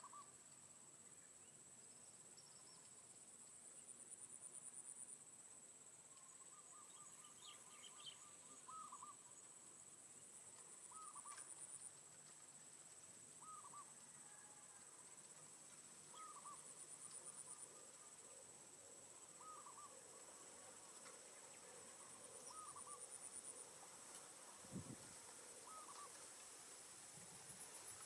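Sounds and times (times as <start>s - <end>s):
insects buzzing: 0.0s - 28.0s
bird low call: 6.2s - 9.2s, 13.4s - 14.6s, 16.1s - 16.7s, 19.4s - 20.1s, 21.8s - 23.1s, 25.6s - 26.2s.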